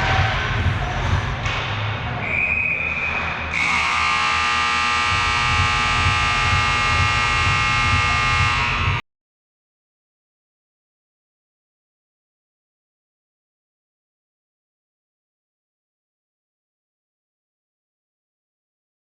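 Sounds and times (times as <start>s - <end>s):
arena buzzer horn: 3.5s - 9.0s.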